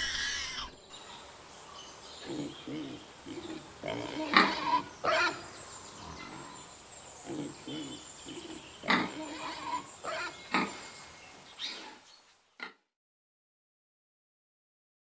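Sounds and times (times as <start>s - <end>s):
pig grunting and squealing: 0.0s - 0.8s, 2.2s - 6.6s, 7.2s - 10.9s.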